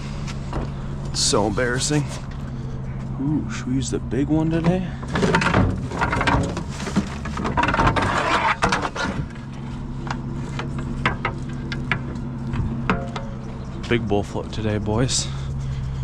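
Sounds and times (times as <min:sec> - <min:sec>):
low engine hum: 0:00.0 - 0:16.0
metal tools clattering: 0:05.0 - 0:09.3.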